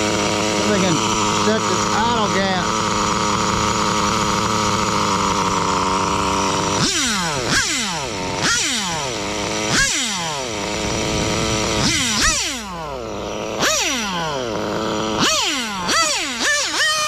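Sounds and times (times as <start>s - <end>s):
engine revving: 0.0s - 17.0s
nitro engine running: 0.0s - 17.0s.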